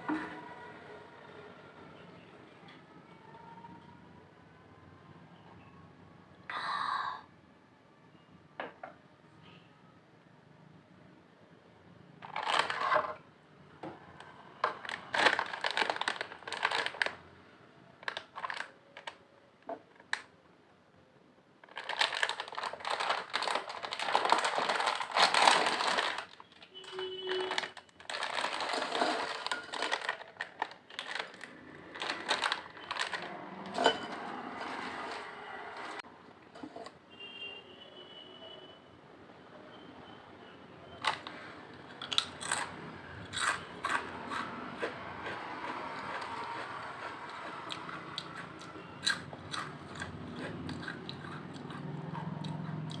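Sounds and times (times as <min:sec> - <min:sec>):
potato chips crunched and chewed: 0:12.2 - 0:12.9, 0:14.6 - 0:17.2, 0:18.0 - 0:19.2, 0:21.7 - 0:26.6, 0:27.3 - 0:33.4, 0:42.0 - 0:53.0.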